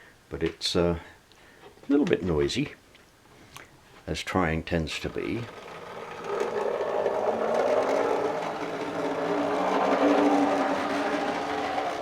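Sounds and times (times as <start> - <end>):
model train motor whirring: 5.4 - 12.0.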